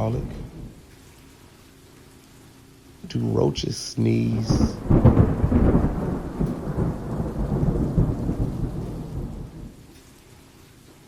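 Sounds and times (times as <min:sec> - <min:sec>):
rolling thunder: 0:00.0 - 0:00.9, 0:04.3 - 0:09.9
rain hiss: 0:00.0 - 0:11.0.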